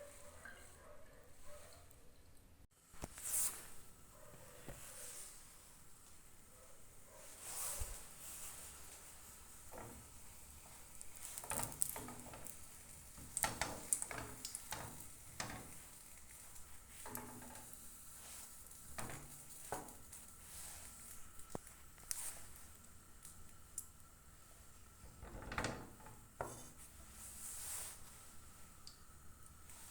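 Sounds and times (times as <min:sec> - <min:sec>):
faint frying sizzle: 0:03.0 - 0:29.9
utensil knocking and scraping pan: 0:25.2 - 0:26.8.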